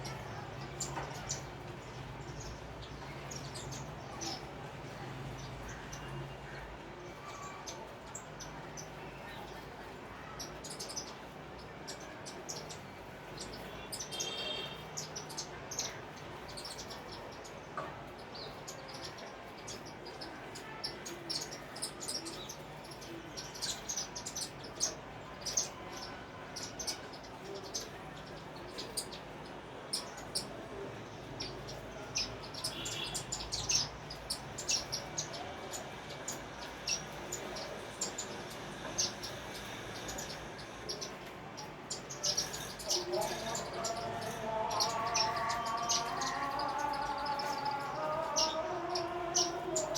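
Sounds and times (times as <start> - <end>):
sparrows chirping: 0.0 - 49.9.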